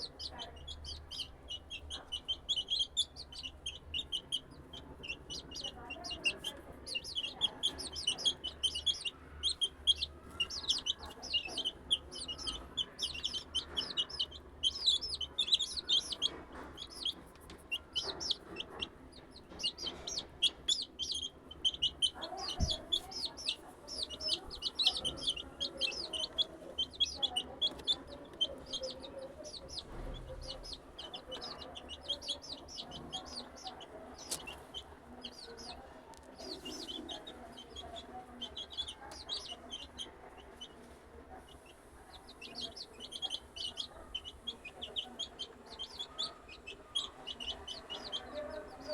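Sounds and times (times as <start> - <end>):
chicks peeping: 0.0 - 48.9.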